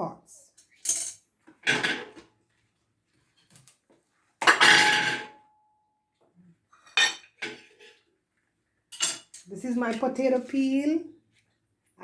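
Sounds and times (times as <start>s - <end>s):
dishes clattering: 0.8s - 2.2s, 4.4s - 5.4s, 6.8s - 8.0s.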